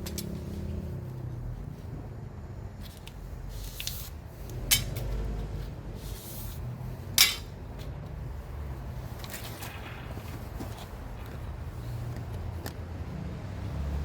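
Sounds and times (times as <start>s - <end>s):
metal pipe clinks: 4.6s - 5.1s, 7.2s - 7.5s.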